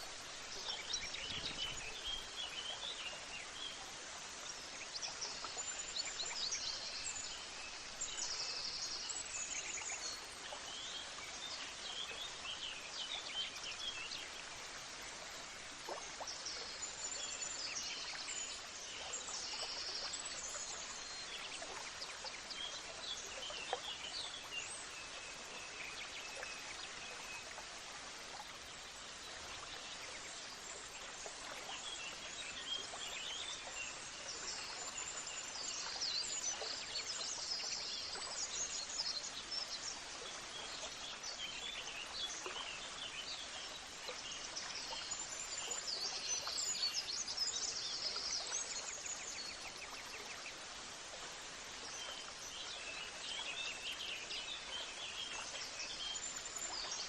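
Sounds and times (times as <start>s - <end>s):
outdoor ambience hiss: 0.0s - 56.8s.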